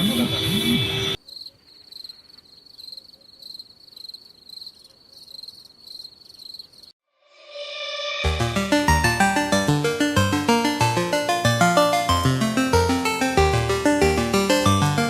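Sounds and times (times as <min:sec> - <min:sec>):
crickets chirping: 0:01.2 - 0:06.9.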